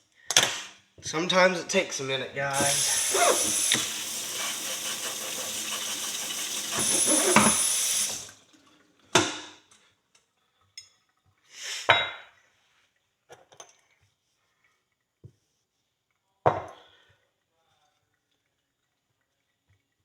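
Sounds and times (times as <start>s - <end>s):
air tool hissing: 2.5s - 8.3s.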